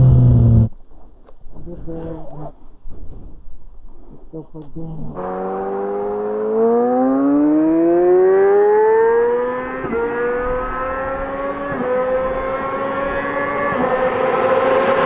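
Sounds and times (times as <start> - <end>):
motorcycle engine accelerating: 0.0 - 0.7, 5.2 - 15.0.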